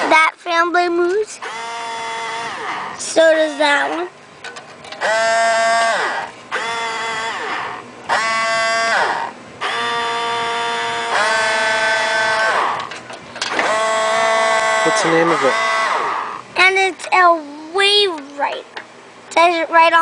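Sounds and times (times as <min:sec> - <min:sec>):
small motor buzzing: 0:01.4 - 0:04.1, 0:05.0 - 0:16.8.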